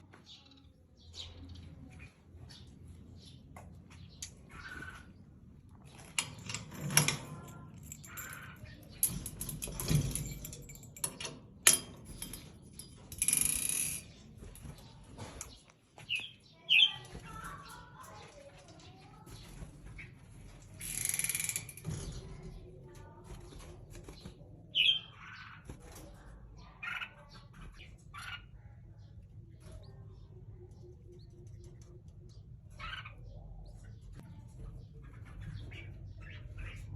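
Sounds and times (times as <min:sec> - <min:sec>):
light rattling: 0:05.8 - 0:16.2.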